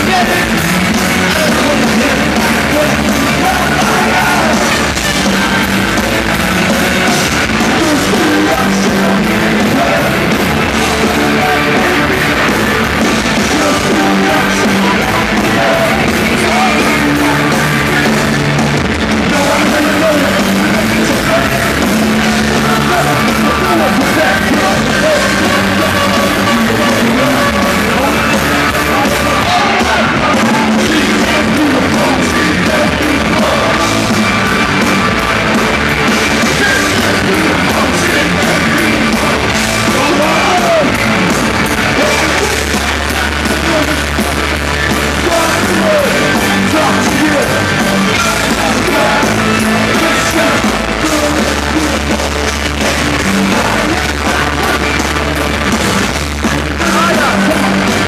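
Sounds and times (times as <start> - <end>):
distorted guitars: 0.0 - 58.0
drums: 0.0 - 58.0
shouted vocals: 0.0 - 58.0.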